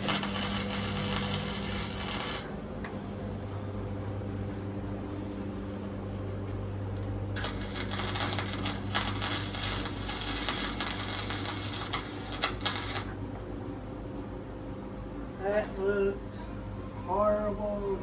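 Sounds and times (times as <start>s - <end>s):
welding arc crackling on metal: 0.0s - 2.6s, 6.7s - 13.5s, 15.4s - 16.1s
electrical hum: 0.0s - 18.0s.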